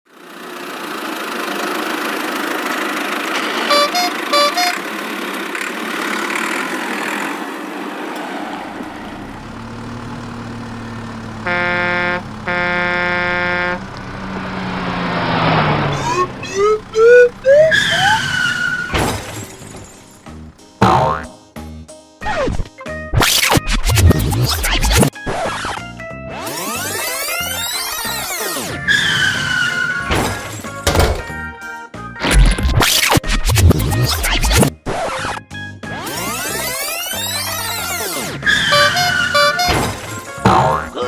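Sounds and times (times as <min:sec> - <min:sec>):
horn toots: 0:03.6 - 0:04.9, 0:08.8 - 0:21.3, 0:37.3 - 0:41.0
long horn blasts: 0:03.6 - 0:04.9, 0:08.8 - 0:20.6, 0:38.6 - 0:40.2
cartoon engine rumble: 0:08.7 - 0:21.3.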